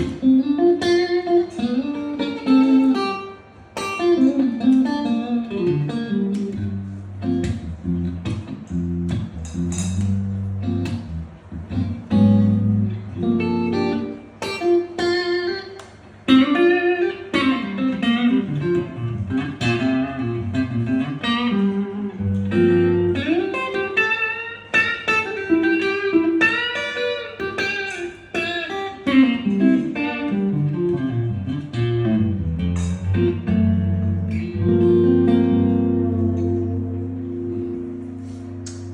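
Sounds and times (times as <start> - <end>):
guitar playing picked notes: 0.0 - 38.9
low bass notes: 6.5 - 13.8, 22.1 - 23.2, 31.1 - 38.9.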